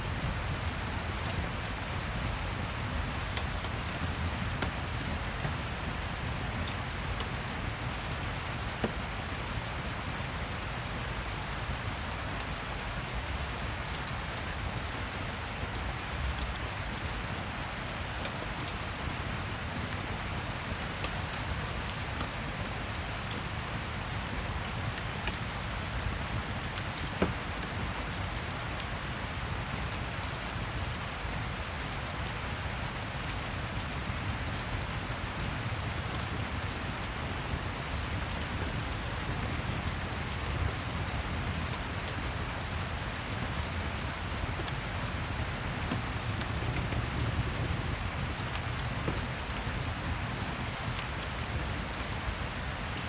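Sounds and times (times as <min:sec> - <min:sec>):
steady rain: 0:00.0 - 0:53.0
fireplace crackling: 0:19.2 - 0:30.0.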